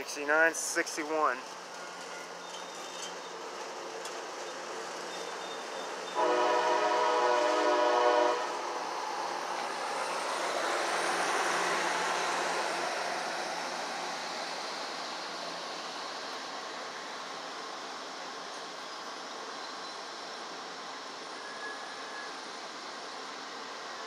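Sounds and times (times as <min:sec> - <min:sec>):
passing train rumble: 0:00.0 - 0:24.0
train horn blast: 0:06.2 - 0:08.7.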